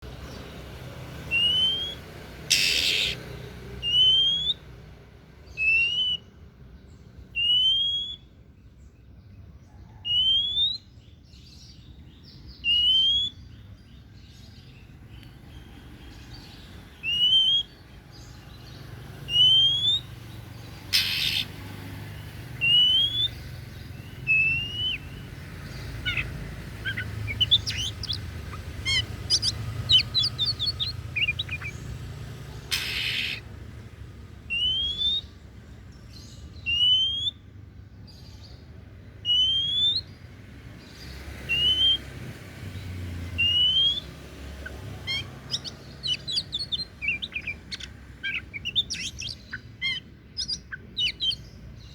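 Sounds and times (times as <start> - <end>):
songbird whistling and chirping: 1.2 - 8.8, 9.7 - 33.6, 34.4 - 51.9
harsh bird call burst: 1.3 - 3.2, 20.9 - 21.6, 24.2 - 31.8, 32.6 - 33.5, 43.4 - 51.4.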